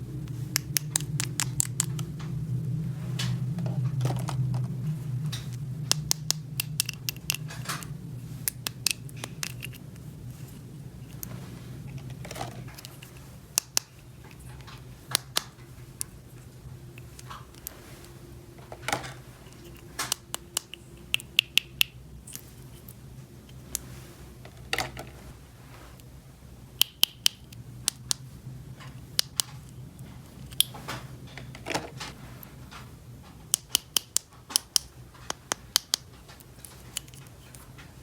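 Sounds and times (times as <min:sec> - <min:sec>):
low steady hum: 0:00.0 - 0:38.0
plastic toy pieces clicking: 0:00.6 - 0:02.0, 0:05.9 - 0:09.8, 0:12.3 - 0:14.0, 0:33.5 - 0:37.3.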